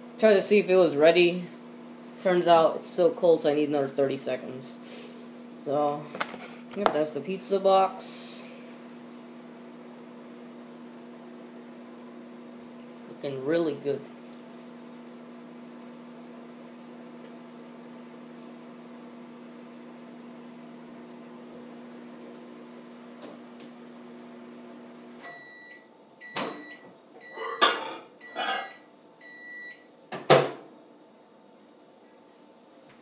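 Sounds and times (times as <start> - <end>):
microwave oven humming: 0.0 - 33.0
high-pitched microwave beeps: 25.2 - 29.9.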